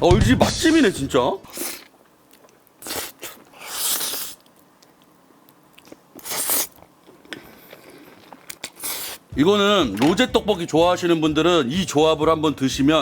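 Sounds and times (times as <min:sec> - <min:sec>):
person chewing food: 0:01.5 - 0:09.3.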